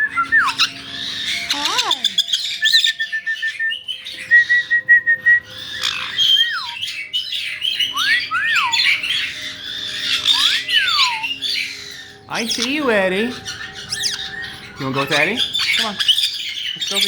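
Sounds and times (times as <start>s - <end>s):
parrots squawking and whistling: 0.0s - 17.0s.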